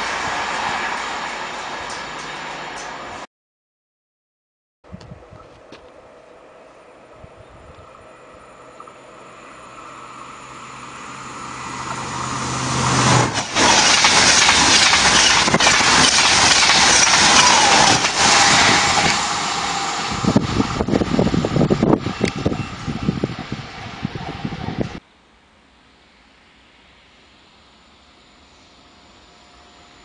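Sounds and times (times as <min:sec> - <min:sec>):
high-speed train passing: 0:00.0 - 0:03.3, 0:05.1 - 0:30.0
rush of wheels and air: 0:07.1 - 0:25.0.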